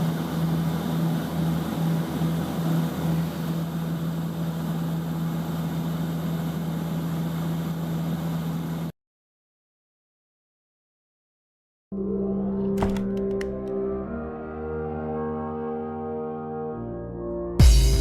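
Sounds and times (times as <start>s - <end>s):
steady engine drone: 0.0s - 8.9s.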